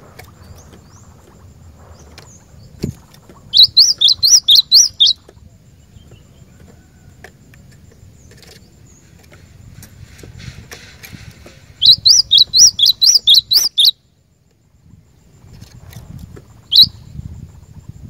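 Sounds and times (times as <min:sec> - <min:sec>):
bird singing high whistled notes: 0:03.5 - 0:05.2, 0:11.8 - 0:14.0, 0:16.7 - 0:17.2.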